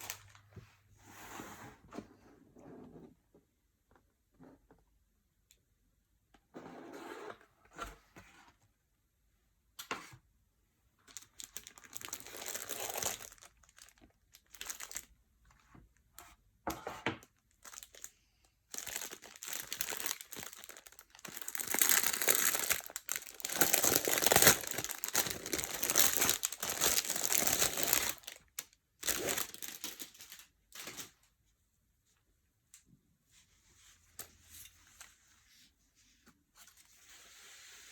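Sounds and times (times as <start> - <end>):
packaging crinkling: 11.1 - 15.1, 18.7 - 30.4.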